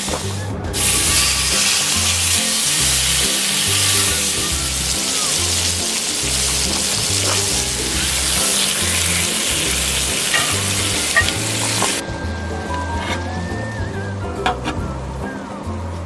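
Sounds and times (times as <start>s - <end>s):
food sizzling: 0.0s - 12.1s
background music with bass line: 0.0s - 16.0s.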